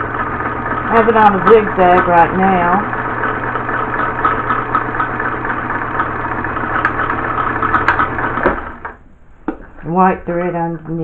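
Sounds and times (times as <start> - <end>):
sewing needle ticking: 0.0 - 8.8
sewing machine motor humming: 0.0 - 9.0.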